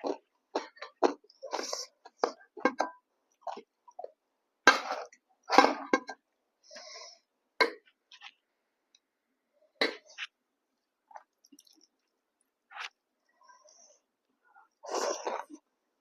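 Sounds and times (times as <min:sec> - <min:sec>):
person chewing food: 0:00.0 - 0:02.5, 0:10.1 - 0:13.0.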